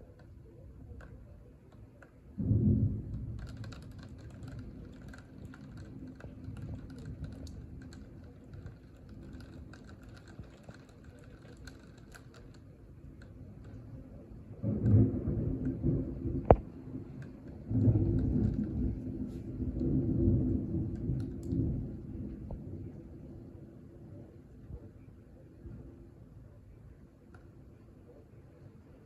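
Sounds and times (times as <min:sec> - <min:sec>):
thunder clap rumbling: 0:02.3 - 0:12.6, 0:13.3 - 0:24.3
light clicking and tapping: 0:03.1 - 0:13.8.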